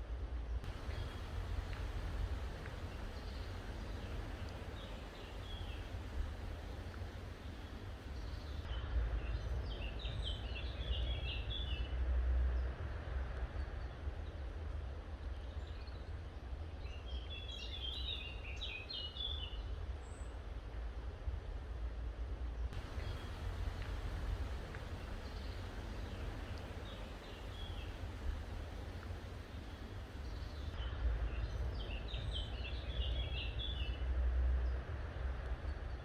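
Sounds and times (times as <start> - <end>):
outdoor ambient rumble: 0.0 - 17.8, 19.6 - 36.0
songbird chirping: 0.6 - 8.8, 22.8 - 34.0.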